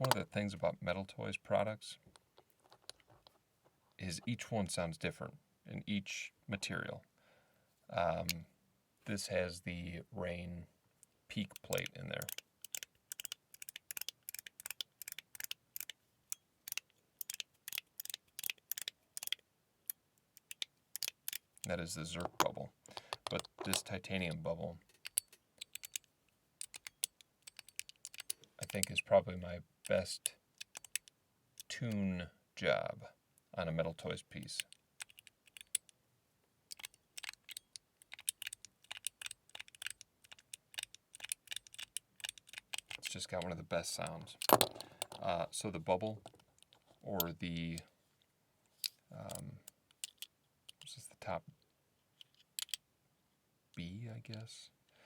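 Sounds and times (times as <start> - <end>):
sharp metal clicks of fidget slider: 11.4 - 24.0, 24.9 - 29.0, 30.6 - 32.0, 34.5 - 35.9, 36.7 - 43.5, 48.8 - 50.9, 52.2 - 52.8.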